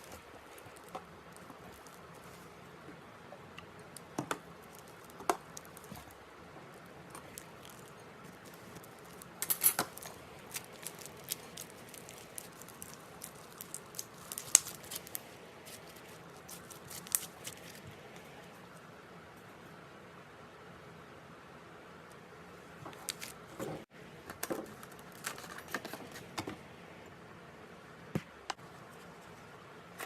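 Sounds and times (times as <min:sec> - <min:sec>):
slime popping: 0:07.1 - 0:17.8
slime sticky clicks and crackles: 0:08.5 - 0:15.2, 0:16.4 - 0:17.7.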